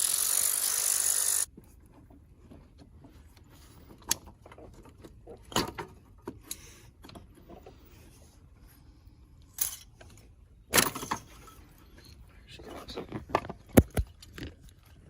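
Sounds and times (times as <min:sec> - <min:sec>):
metal tools clinking and scraping: 0:09.6 - 0:10.2.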